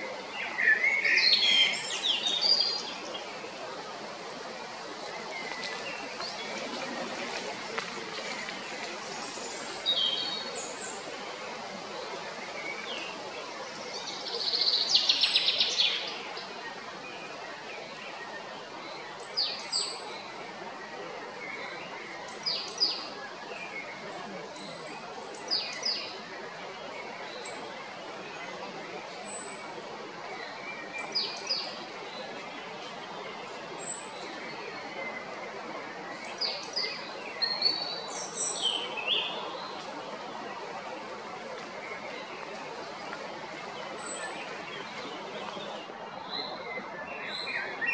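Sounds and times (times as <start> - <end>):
outdoor background hiss: 0.0 - 47.9
songbird chirping: 0.0 - 47.9
steady background noise: 0.0 - 47.9.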